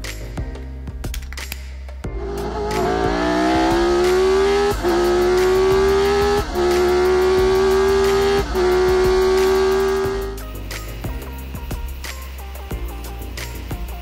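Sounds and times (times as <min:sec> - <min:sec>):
car engine accelerating: 0:02.1 - 0:10.4.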